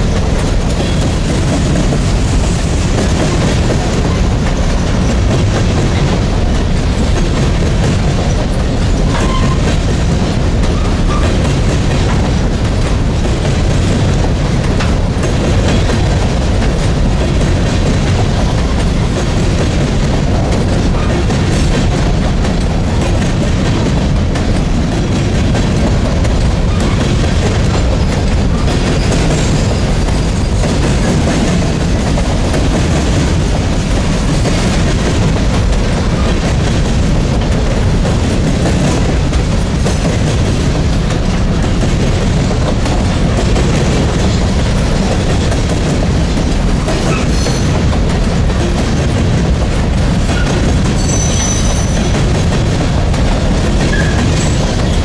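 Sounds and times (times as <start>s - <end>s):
freight train wheels rumbling on rails: 0.0s - 55.0s
high wheel squeal: 51.0s - 52.1s.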